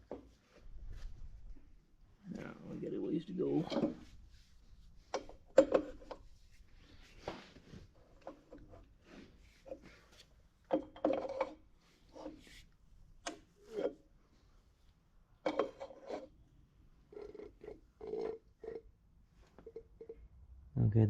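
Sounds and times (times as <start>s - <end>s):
hand tools scraping metal parts: 15.5s - 16.4s.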